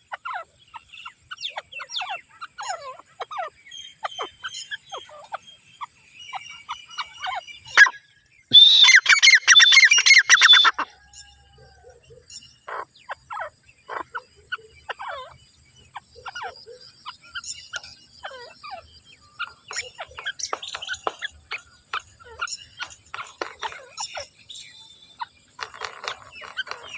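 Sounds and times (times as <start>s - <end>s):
quiet bird chirps: 0.0s - 26.9s
bird shrill repeated call: 6.9s - 11.5s.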